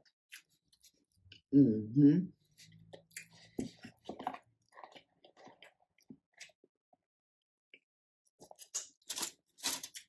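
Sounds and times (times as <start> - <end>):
person chewing: 0.0 - 1.4, 2.6 - 6.6.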